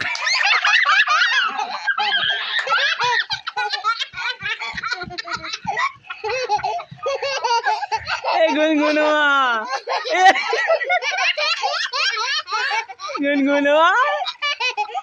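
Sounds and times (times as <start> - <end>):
young child giggling: 0.0 - 13.3, 14.1 - 15.0.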